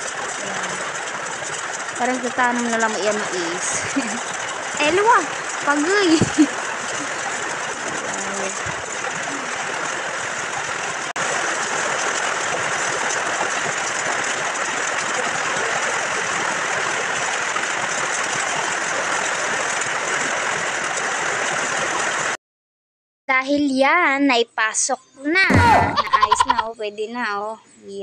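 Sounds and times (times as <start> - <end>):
heavy rain on a metal roof: 0.0 - 22.4.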